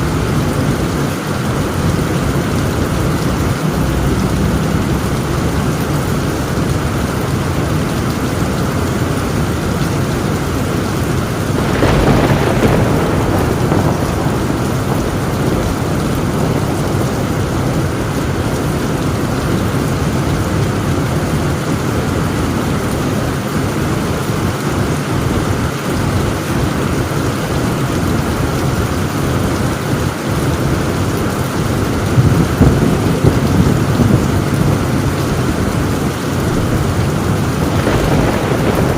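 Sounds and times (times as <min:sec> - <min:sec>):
heavy rain on a tin roof: 0:00.0 - 0:38.9
thunder clap: 0:10.0 - 0:19.8, 0:31.8 - 0:38.9.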